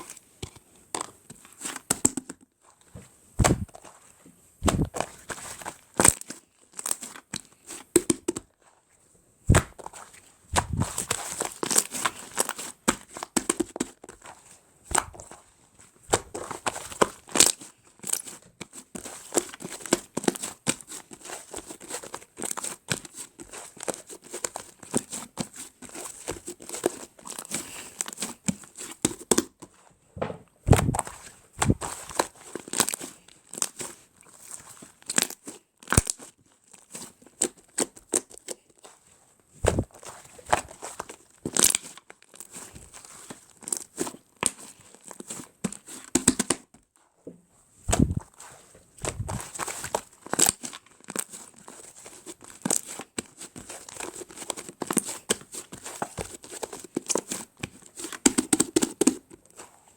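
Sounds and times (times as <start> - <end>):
slime squelching thumps: 3.0 - 4.0, 4.6 - 5.6, 9.5 - 15.4, 16.0 - 17.2, 30.2 - 32.3, 39.6 - 41.7, 47.8 - 50.1
slime crackling and popping: 3.4 - 3.9, 4.6 - 8.5, 9.5 - 15.4, 16.1 - 18.5, 30.7 - 33.8, 34.4 - 38.6, 39.6 - 46.6, 47.9 - 48.3, 49.0 - 51.5.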